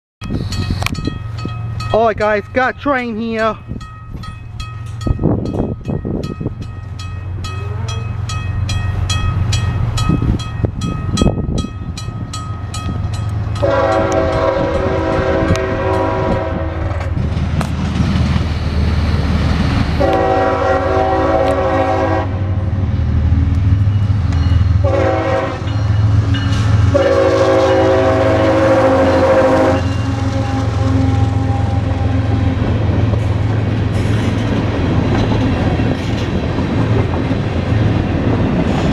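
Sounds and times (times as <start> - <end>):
crossing bell ringing: 0.2 - 16.5, 23.7 - 32.8
diesel locomotive rumble: 0.2 - 38.9
train horn blasts: 13.6 - 17.2, 20.0 - 22.7, 24.8 - 26.0, 26.8 - 32.9.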